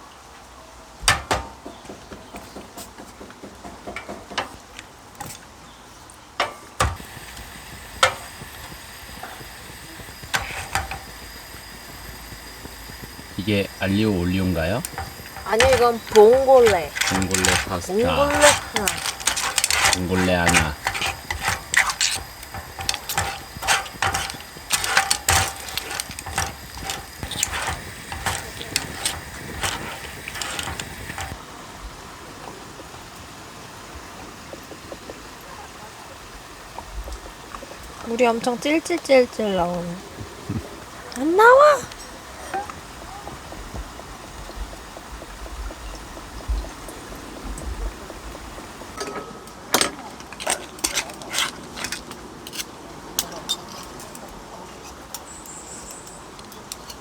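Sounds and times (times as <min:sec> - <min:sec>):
utensil clinking and scraping in pan: 0:06.3 - 0:31.4, 0:48.6 - 0:57.0
cookware knocks and clinks: 0:49.0 - 0:50.0.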